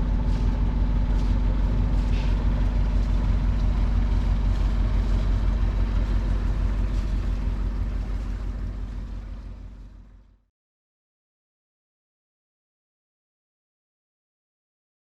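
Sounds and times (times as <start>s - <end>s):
boat diesel engine droning: 0.0s - 10.4s.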